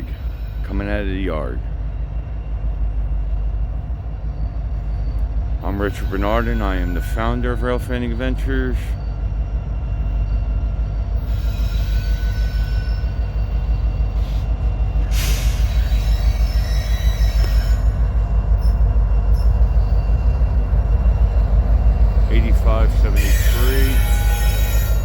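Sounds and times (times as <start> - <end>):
train rumbling: 0.0 - 25.0
high-pitched wheel squeal: 11.2 - 22.2, 23.0 - 25.0.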